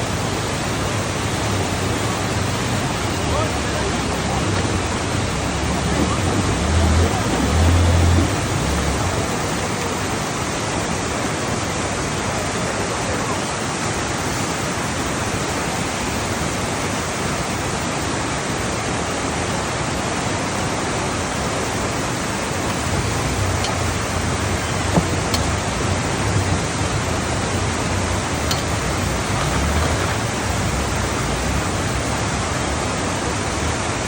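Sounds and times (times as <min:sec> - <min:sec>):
rushing rain runoff water: 0:00.0 - 0:34.0.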